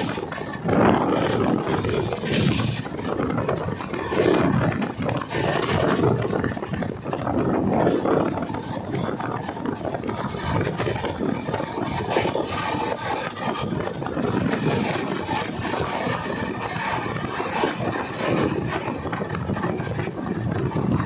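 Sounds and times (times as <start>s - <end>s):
train wheels rattling on rails: 0.0s - 21.0s.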